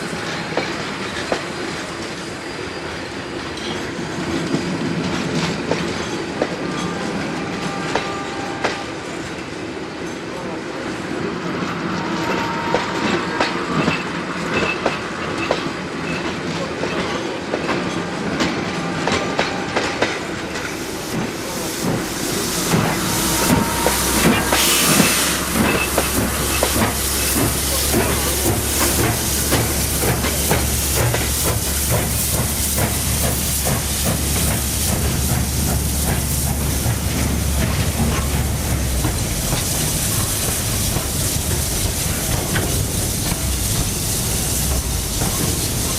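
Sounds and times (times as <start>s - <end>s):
train wheels clattering on rails: 0.0s - 10.5s, 12.2s - 45.9s
steam hiss: 19.2s - 45.9s.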